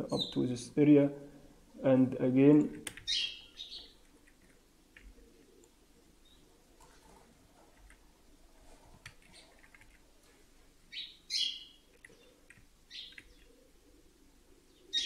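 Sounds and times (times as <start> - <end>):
computer keys and mouse clicks: 2.6 - 3.1, 8.9 - 10.0, 11.9 - 13.5
small bird chirping: 3.0 - 4.1, 6.2 - 6.5, 10.9 - 13.7, 14.7 - 15.0.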